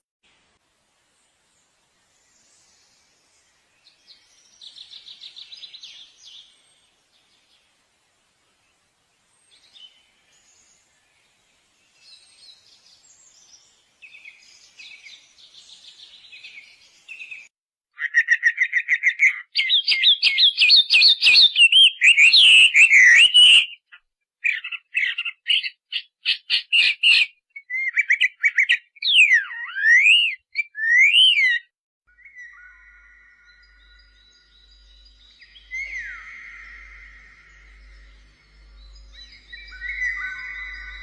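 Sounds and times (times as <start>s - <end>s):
birds trilling: 32.3s - 41.0s.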